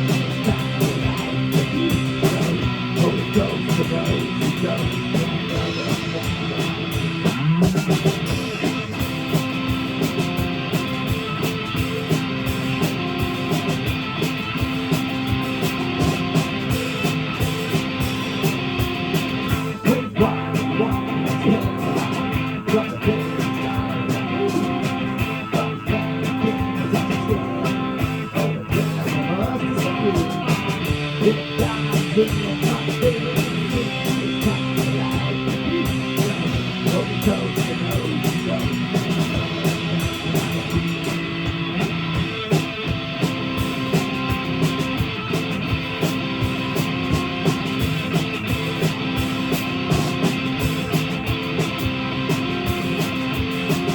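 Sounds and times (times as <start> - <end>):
electric guitar: 0.0 - 53.9
live rock band playing: 0.0 - 53.9.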